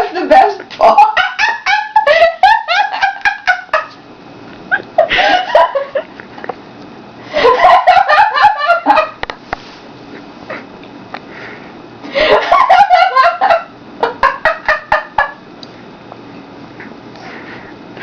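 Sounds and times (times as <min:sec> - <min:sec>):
woman laughing hard: 0:00.8 - 0:04.0, 0:04.7 - 0:06.1, 0:07.3 - 0:09.2, 0:12.1 - 0:15.4.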